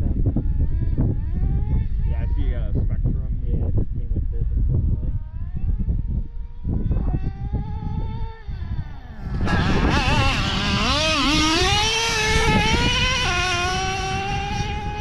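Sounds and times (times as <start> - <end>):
rc truck engine running: 5.2 - 15.0.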